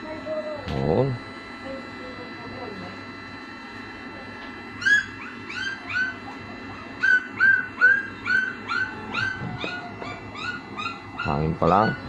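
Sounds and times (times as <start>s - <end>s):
hot air blower blowing: 0.0s - 12.0s
dog yipping and whimpering: 4.8s - 6.2s, 7.0s - 12.0s.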